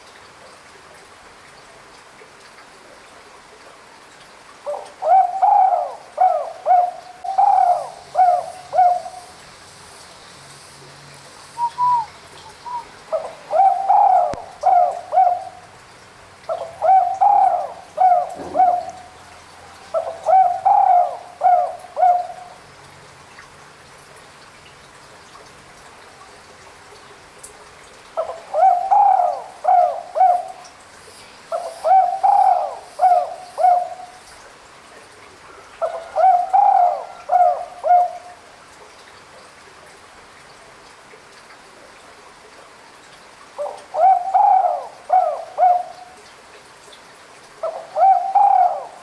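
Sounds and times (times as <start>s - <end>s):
dove cooing: 4.7s - 9.4s, 11.6s - 15.7s, 16.5s - 22.6s, 28.2s - 30.7s, 31.5s - 34.2s, 35.8s - 38.3s, 43.6s - 46.2s, 47.6s - 49.0s.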